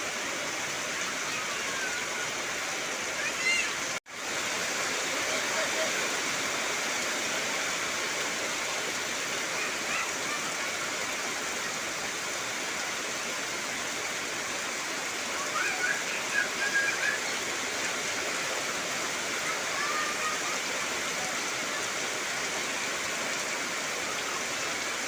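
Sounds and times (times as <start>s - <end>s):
heavy rain on trees: 0.0s - 25.0s
faint high-pitched wavering calls: 15.4s - 17.4s.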